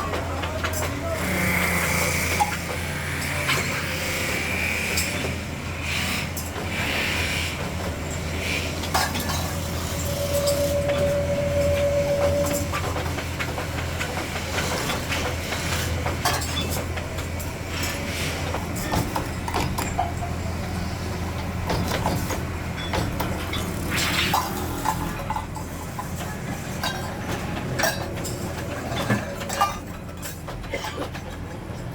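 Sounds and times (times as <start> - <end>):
workshop machinery humming: 8.2 - 25.1
steady machine whine: 9.5 - 14.0.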